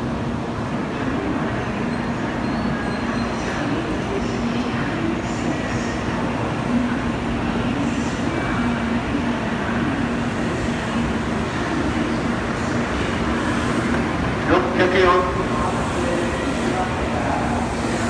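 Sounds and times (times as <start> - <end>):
murmur of waiting crowd: 0.0 - 18.0
station platform noise: 0.0 - 18.0.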